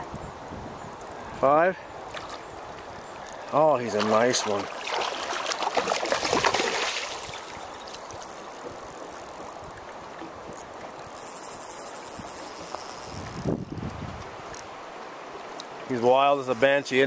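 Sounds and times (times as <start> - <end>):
river water rushing: 1.1 - 13.0.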